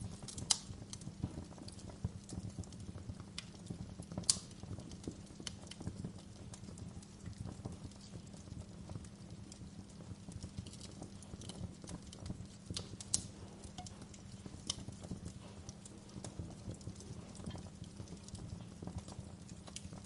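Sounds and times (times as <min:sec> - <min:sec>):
fire crackling: 0:00.0 - 0:20.0.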